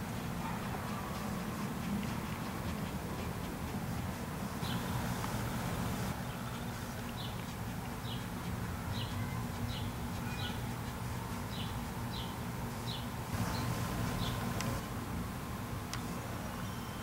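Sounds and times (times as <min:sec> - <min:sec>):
bird chirping: 0:04.6 - 0:08.3, 0:08.9 - 0:10.8, 0:11.5 - 0:14.8.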